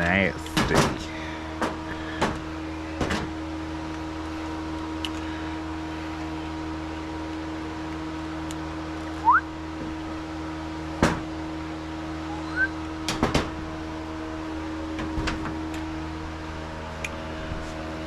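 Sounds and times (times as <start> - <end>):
steady hum: 0.0 - 18.0
short rising squeaks: 12.2 - 12.8.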